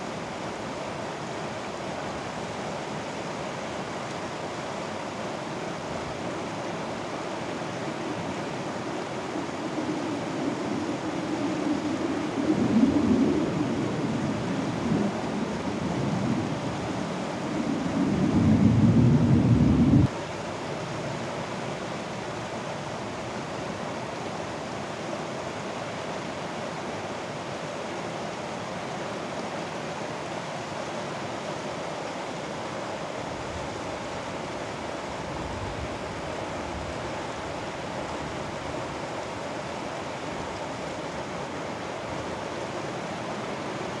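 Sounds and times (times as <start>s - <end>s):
stream water rushing: 36.0s - 44.0s.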